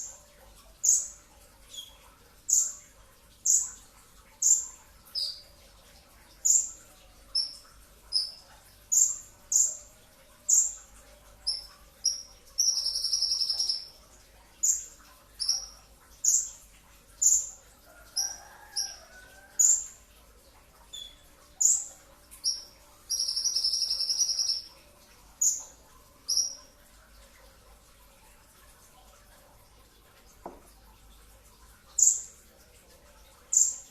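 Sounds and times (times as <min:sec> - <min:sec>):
bird rapid trill: 0:11.5 - 0:13.9, 0:22.5 - 0:24.6
bird singing high chirps: 0:11.5 - 0:13.9, 0:22.4 - 0:24.7.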